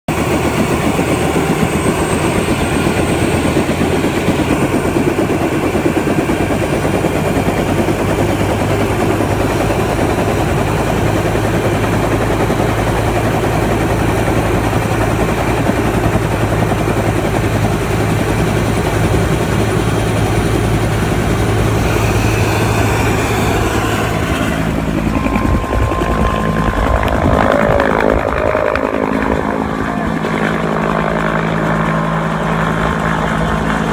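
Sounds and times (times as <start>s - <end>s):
helicopter rotor and engine: 0.1s - 33.9s
steady tones: 20.4s - 33.5s.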